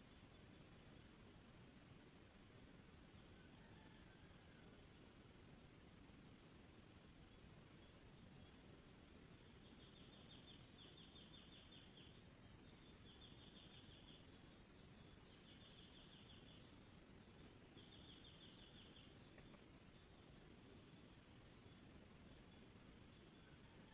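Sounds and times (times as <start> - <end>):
insects droning: 0.0 - 23.9
insect pulsing trills: 17.6 - 21.6.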